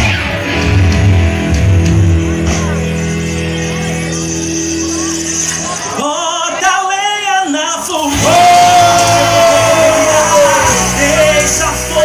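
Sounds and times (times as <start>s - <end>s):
band playing: 0.0s - 6.5s, 8.0s - 12.0s
person singing: 7.6s - 12.0s.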